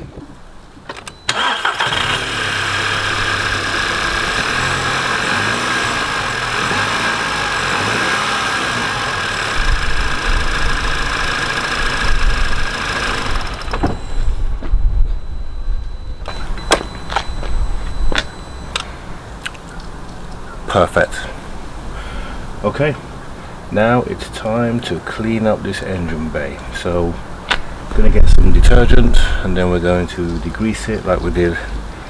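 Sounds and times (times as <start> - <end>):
car engine starting and idling: 0.9 - 18.9.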